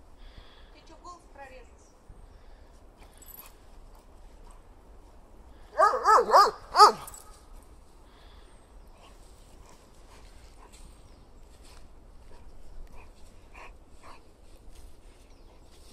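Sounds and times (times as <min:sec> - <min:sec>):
dog barking: 0:05.7 - 0:07.1.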